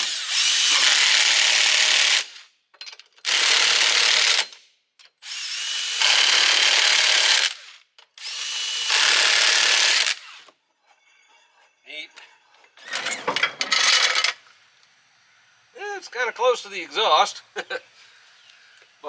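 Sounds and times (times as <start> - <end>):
power driver spinning lug nuts: 12.8 - 14.5.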